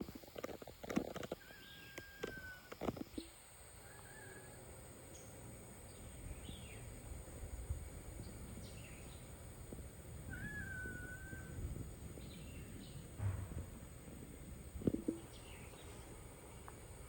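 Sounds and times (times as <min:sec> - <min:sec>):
faint bird calls: 0:01.1 - 0:05.3, 0:10.2 - 0:14.1
low steady rumble: 0:04.9 - 0:17.0.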